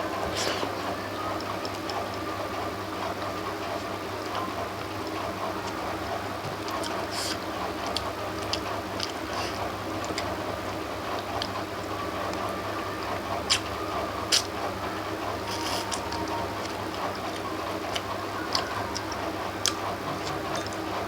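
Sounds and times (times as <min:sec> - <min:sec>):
low background hum: 0:00.0 - 0:21.0
wet chewing smacks and clicks: 0:14.3 - 0:14.5.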